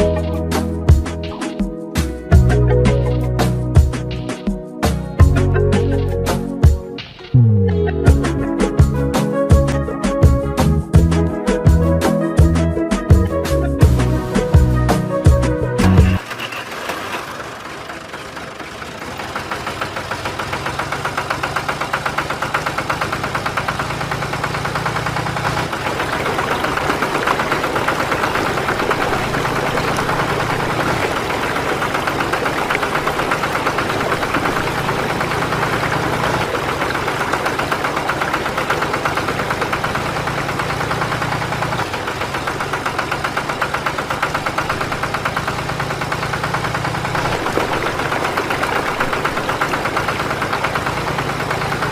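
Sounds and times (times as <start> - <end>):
small motor rattling: 16.0 - 51.9.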